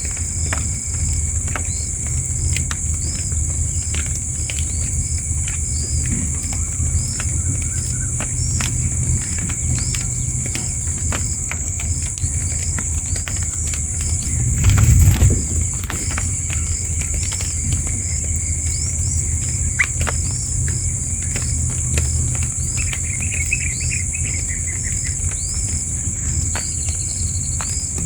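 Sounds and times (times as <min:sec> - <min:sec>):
low rumble: 0:14.1 - 0:16.9.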